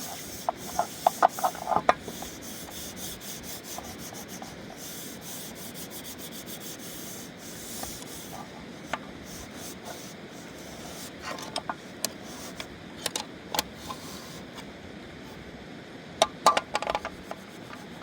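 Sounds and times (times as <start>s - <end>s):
scraping strokes: 0.0s - 12.7s, 17.1s - 18.0s
sharp clicks and light knocks: 11.2s - 14.0s, 16.2s - 17.9s.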